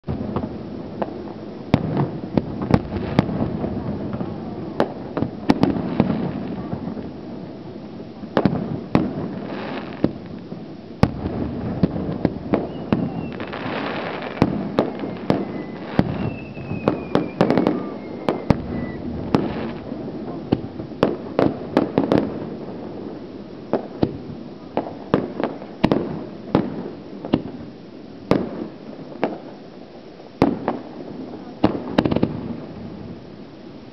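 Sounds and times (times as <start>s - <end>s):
firework shells bursting: 11.0s - 22.6s
high whistle falling in pitch: 12.6s - 13.6s, 14.8s - 19.1s.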